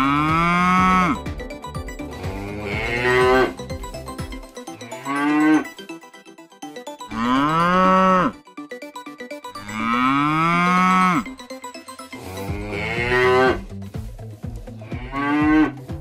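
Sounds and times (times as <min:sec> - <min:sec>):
calves mooing: 0:00.0 - 0:01.2, 0:09.7 - 0:11.3.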